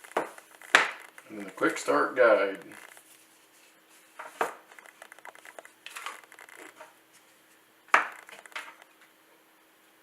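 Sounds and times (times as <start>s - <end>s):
packaging clicks and rustles: 4.7s - 6.8s, 8.1s - 8.9s.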